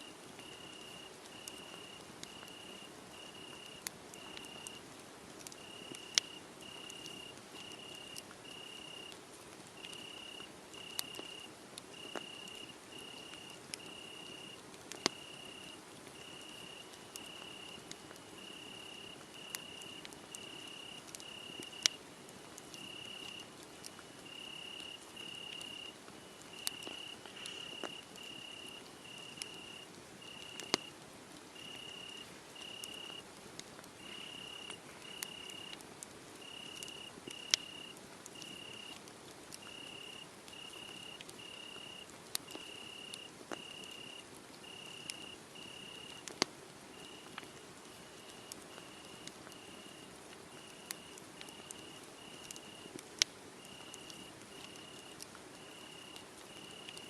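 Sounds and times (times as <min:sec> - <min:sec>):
wood fire crackling and popping: 0:00.2 - 0:57.0
crickets chirping: 0:00.4 - 0:04.8, 0:05.6 - 0:09.1, 0:09.8 - 0:22.0, 0:22.7 - 0:30.9, 0:31.6 - 0:33.2, 0:34.0 - 0:35.8, 0:36.4 - 0:39.0, 0:39.6 - 0:46.2, 0:46.9 - 0:52.9, 0:53.6 - 0:57.0.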